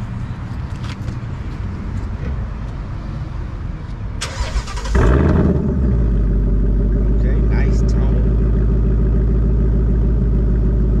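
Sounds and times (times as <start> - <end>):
car engine starting and idling: 4.2 - 11.0
low engine rumble: 4.2 - 11.0.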